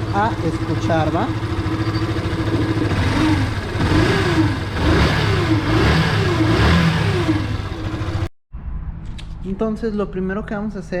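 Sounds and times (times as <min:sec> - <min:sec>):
motorcycle engine revving: 0:00.0 - 0:08.3.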